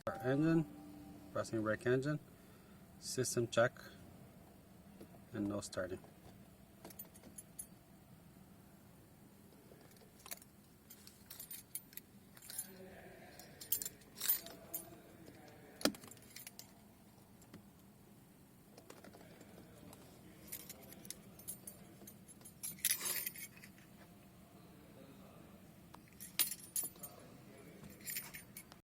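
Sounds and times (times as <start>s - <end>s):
car keys jingling: 6.8s - 7.7s, 20.4s - 23.8s, 26.1s - 27.1s, 27.9s - 28.8s.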